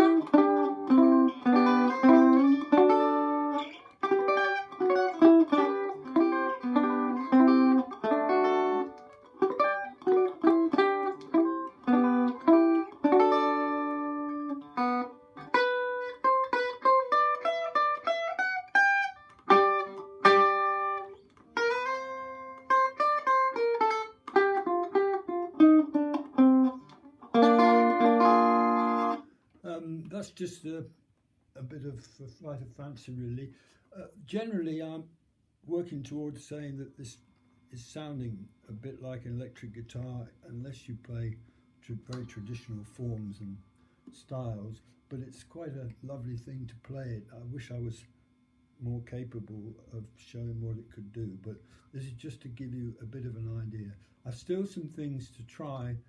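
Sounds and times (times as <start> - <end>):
electric banjo picking a tune: 0.0 - 29.2.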